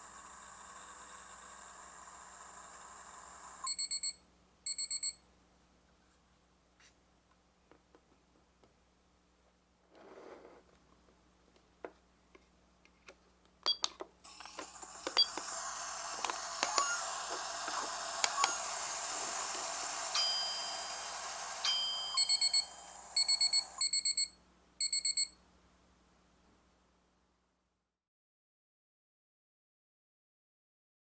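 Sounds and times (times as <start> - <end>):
toy microwave hum: 0.0 - 5.2, 13.7 - 25.3
short electronic beeps: 21.7 - 25.4.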